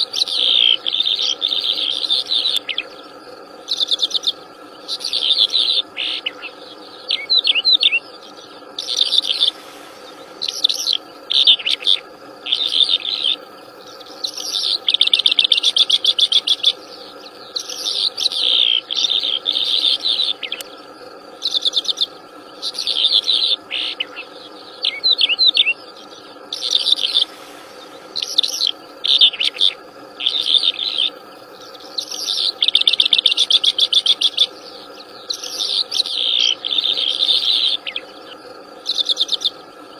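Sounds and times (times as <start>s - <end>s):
faint steady drone: 0.0s - 39.9s
songbird singing trilled phrases: 0.0s - 39.9s.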